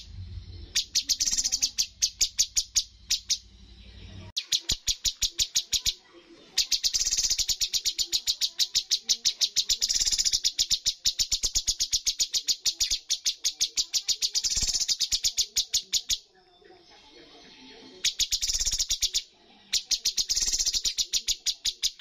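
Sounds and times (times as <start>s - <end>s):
bird trilling sharp high notes: 0.7s - 3.4s, 6.6s - 13.0s.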